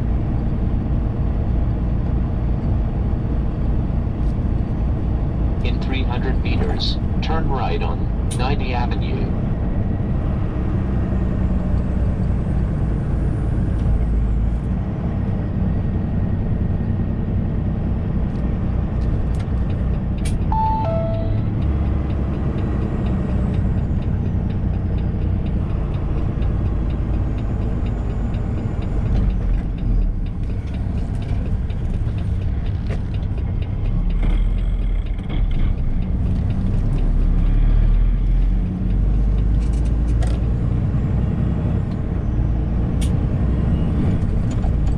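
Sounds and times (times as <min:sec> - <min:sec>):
truck engine with road noise: 0:00.0 - 0:44.9
falling two-note chime: 0:20.5 - 0:21.8.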